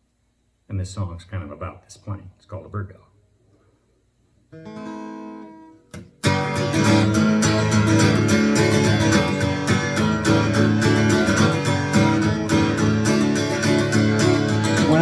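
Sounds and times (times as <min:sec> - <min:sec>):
acoustic guitar strumming: 0:04.5 - 0:15.0.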